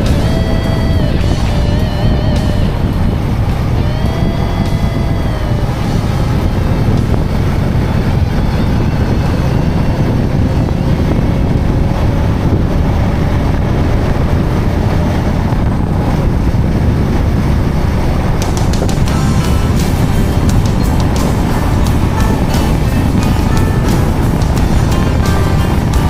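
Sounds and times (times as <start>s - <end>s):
motorcycle engine: 0.0s - 26.0s
road noise: 0.0s - 26.0s
wind rushing on microphone: 0.0s - 26.0s.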